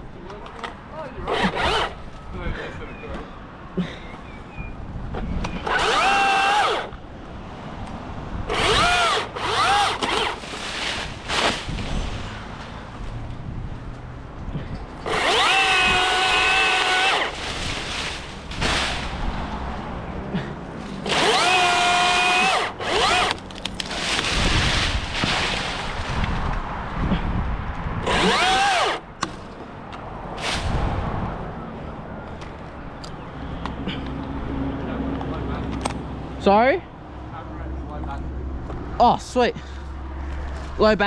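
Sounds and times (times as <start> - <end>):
battery chainsaw whining in bursts: 5.6 - 6.9, 8.5 - 10.4, 15.0 - 17.4, 21.0 - 23.4, 28.0 - 29.0.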